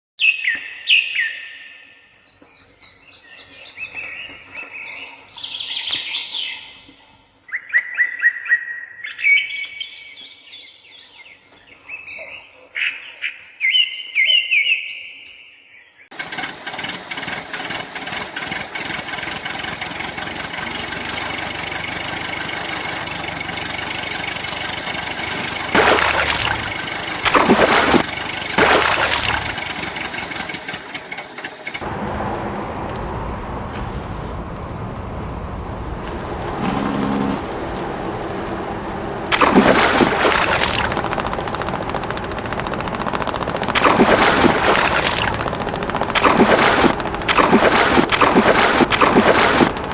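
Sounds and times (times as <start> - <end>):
dense mechanical noise: 16.2 - 49.9
birds chirping: 36.0 - 49.9.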